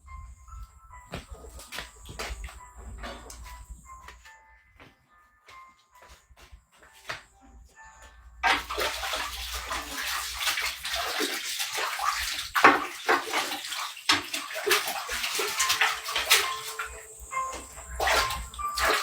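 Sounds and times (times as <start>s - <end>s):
water running and splashing: 8.4s - 19.0s.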